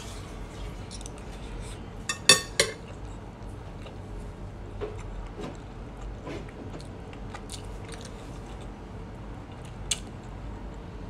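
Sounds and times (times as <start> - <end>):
person chewing: 7.3 - 8.7.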